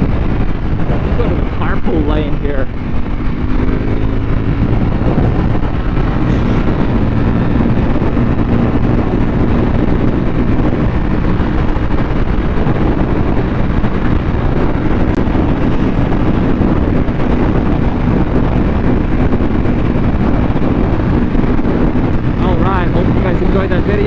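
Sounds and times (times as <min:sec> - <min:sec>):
motorcycle engine cruising: 0:00.0 - 0:24.0
wind rush on microphone: 0:00.0 - 0:24.0.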